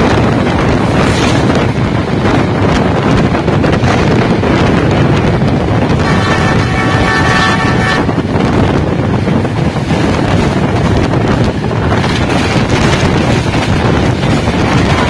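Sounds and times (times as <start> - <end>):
train running on track: 0.0 - 15.0
wind buffeting microphone: 0.0 - 15.0
multi-tone train horn: 5.8 - 8.5, 14.6 - 15.0.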